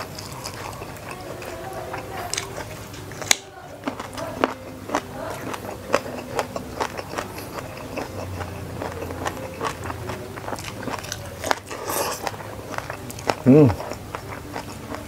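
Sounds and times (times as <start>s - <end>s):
crisp bite: 0.0s - 15.0s
person chewing food: 0.0s - 15.0s.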